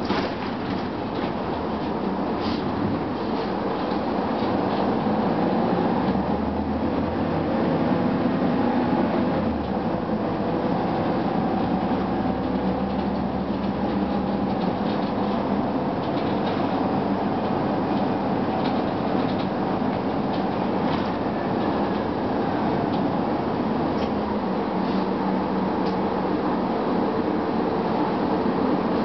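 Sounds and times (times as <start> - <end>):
bus engine drone: 0.0 - 29.0.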